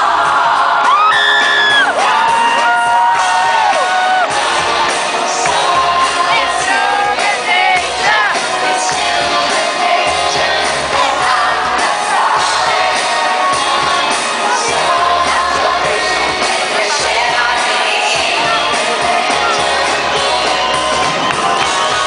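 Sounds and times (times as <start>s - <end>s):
crowd shouting: 0.0s - 22.0s
live band playing pop music: 0.0s - 22.0s
woman singing: 3.8s - 20.6s.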